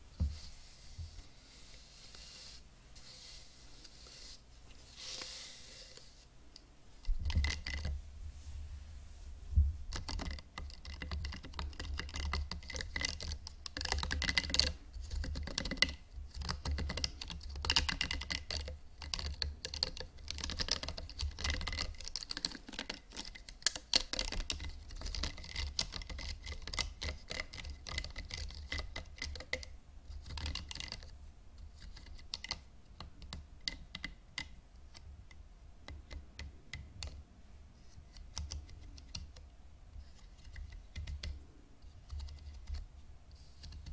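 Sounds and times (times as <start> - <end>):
hairbrushes tapped and scratched: 7.0 - 8.0, 9.9 - 31.1.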